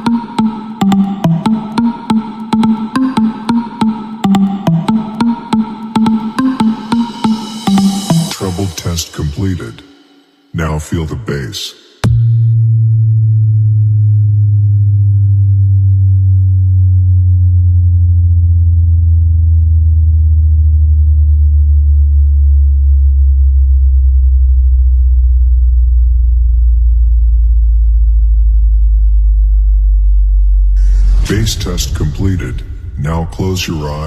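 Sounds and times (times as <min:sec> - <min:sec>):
deep sine tone gliding downward: 0:12.6 - 0:34.0.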